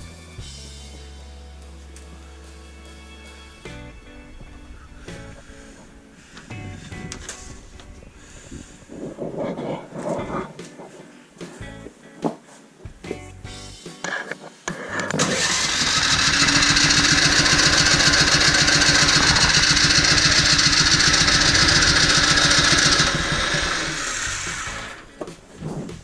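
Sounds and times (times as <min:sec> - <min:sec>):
snowblower engine cranking: 0:15.1 - 0:24.9.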